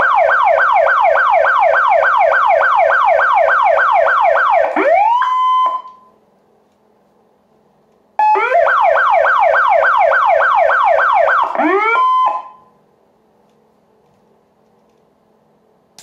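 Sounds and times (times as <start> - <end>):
electronic police siren: 0.0 - 6.1, 8.2 - 12.7.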